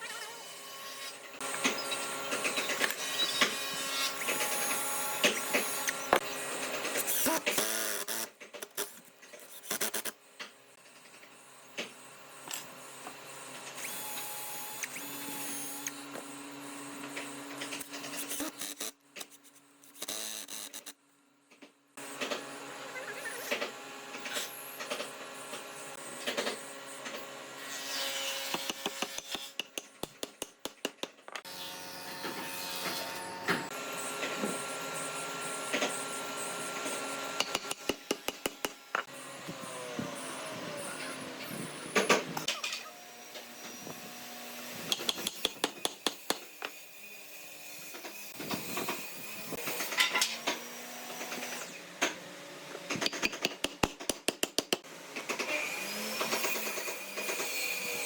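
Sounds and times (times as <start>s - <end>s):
small motor whirring: 0.0s - 10.2s, 12.2s - 21.0s, 31.4s - 45.5s.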